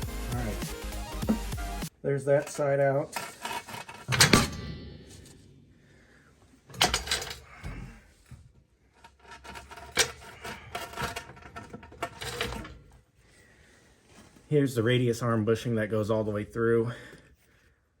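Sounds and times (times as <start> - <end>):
heavy steel parts clanking: 3.1 - 5.8, 6.7 - 7.5, 9.2 - 12.8.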